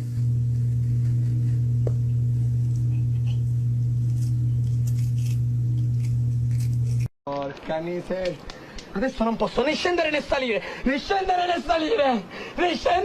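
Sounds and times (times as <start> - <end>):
loud steady low hum: 0.0 - 7.1.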